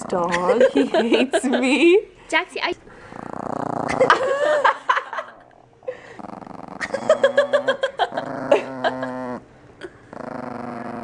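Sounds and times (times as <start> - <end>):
dog growling: 2.9 - 4.3, 6.1 - 11.0.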